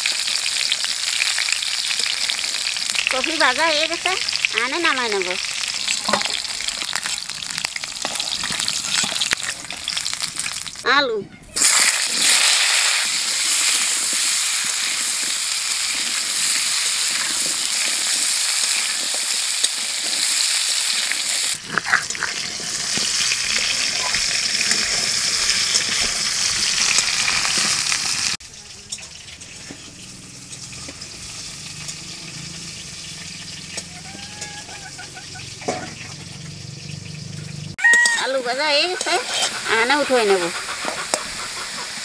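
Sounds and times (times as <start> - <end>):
potatoes sizzling in hot oil: 0.0 - 11.0, 11.6 - 42.0
stone muller grinding: 38.7 - 41.8
stirring in a wok: 38.7 - 42.0.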